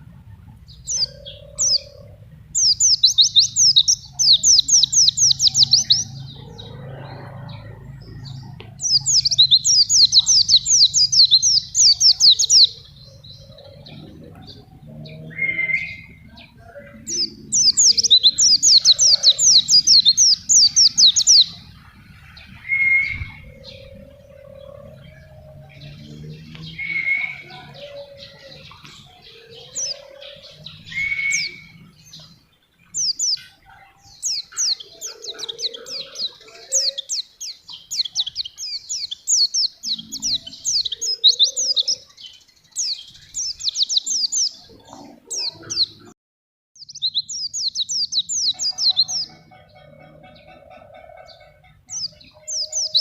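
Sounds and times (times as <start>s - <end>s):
bird trilling: 0.7s - 42.2s, 46.8s - 53.0s.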